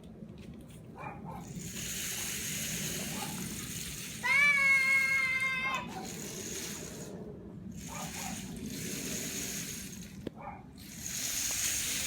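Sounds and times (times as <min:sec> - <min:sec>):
rain stick pouring: 0:01.4 - 0:07.2, 0:07.8 - 0:10.2, 0:10.8 - 0:12.0.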